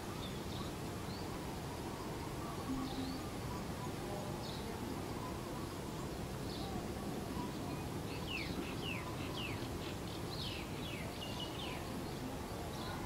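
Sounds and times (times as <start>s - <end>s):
small bird chirping: 2.0s - 4.6s.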